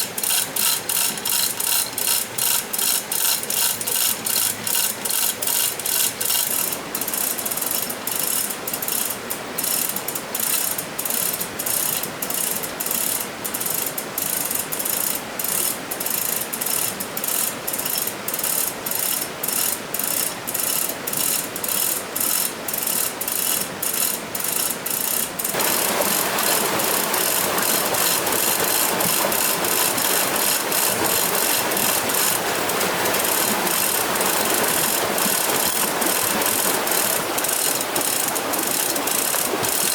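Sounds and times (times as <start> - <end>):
mechanical ratchet clicking: 0.0 - 39.9.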